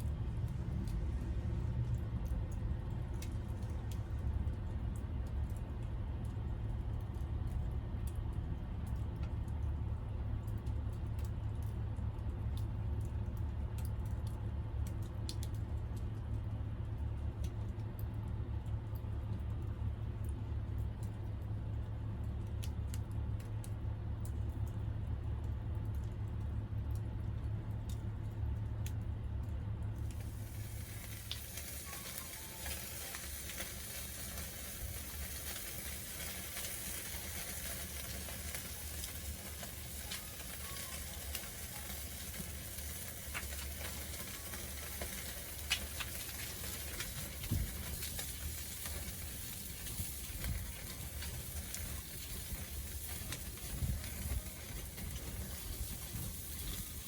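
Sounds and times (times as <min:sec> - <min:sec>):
fish sizzling on a grill: 0:00.0 - 0:08.2, 0:30.0 - 0:57.0
low rumble with pops: 0:00.0 - 0:57.0.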